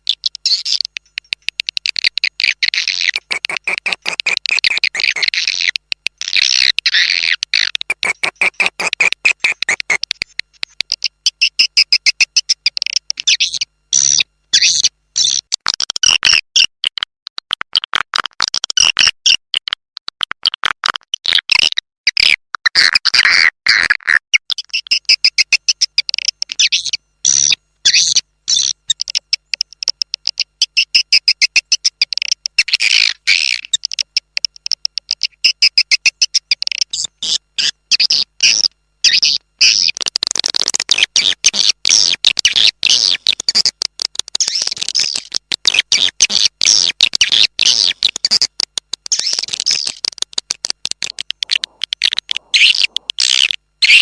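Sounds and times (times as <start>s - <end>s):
high-pitched bird twittering: 0.0s - 10.0s, 10.8s - 15.4s, 24.6s - 34.0s, 40.9s - 43.7s, 44.3s - 48.5s, 49.1s - 54.0s
rapid clicks: 0.0s - 13.3s, 28.5s - 37.0s, 38.0s - 54.0s.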